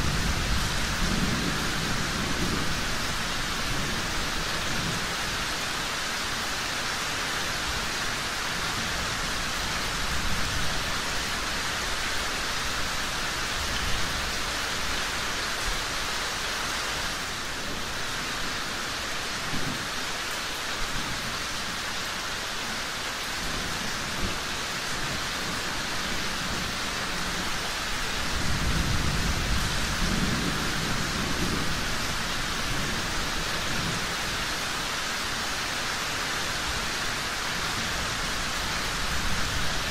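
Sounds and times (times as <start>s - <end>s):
low thunder rolls: 0.0s - 5.1s, 28.2s - 32.0s
steady rain falling: 0.0s - 39.9s.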